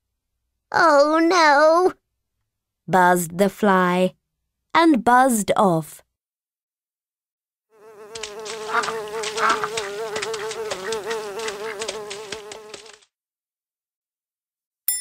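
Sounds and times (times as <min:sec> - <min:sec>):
fly buzzing: 0:07.7 - 0:13.1.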